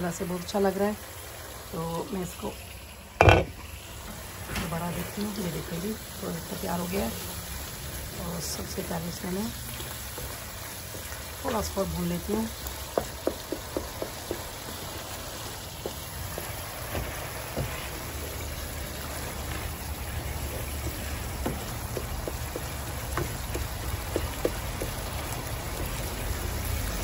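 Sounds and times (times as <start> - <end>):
sauce sizzling in a pan: 0.0 - 27.0
wooden spatula scraping a pan: 14.7 - 22.0.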